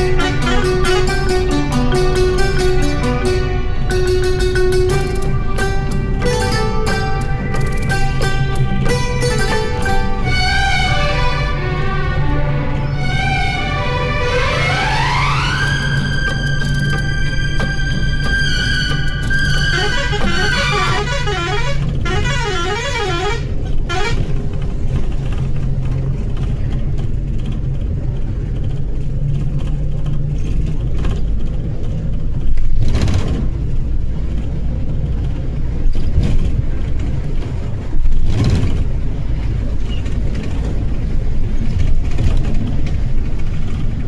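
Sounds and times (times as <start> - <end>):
motor vehicle rumble: 0.0 - 44.0
warbling horn-like tone: 3.2 - 24.2.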